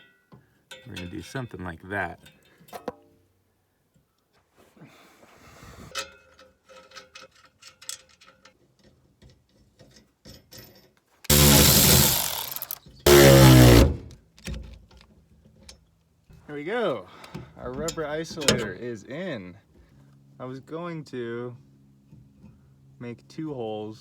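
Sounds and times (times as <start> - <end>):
handheld power tool bursts: 11.3 - 14.2.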